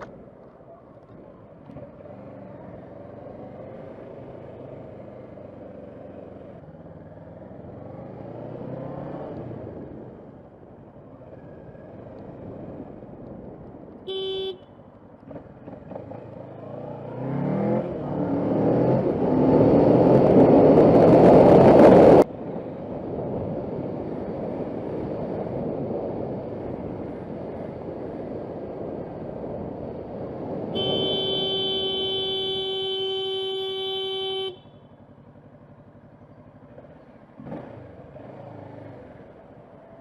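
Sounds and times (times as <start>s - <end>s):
road and wind noise: 0.0s - 40.0s
car horn: 14.0s - 14.8s, 30.7s - 35.0s
motorcycle engine revving: 15.2s - 22.2s, 35.3s - 39.5s.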